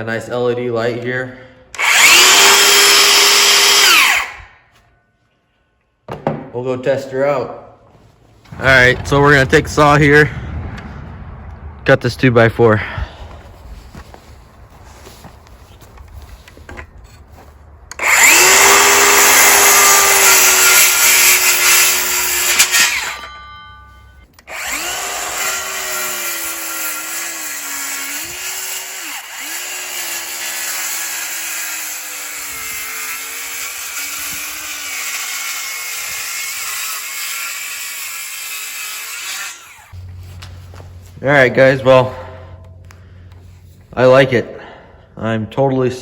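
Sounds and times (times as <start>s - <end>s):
circular saw cutting wood: 1.7s - 4.6s, 17.9s - 23.4s, 24.4s - 40.1s.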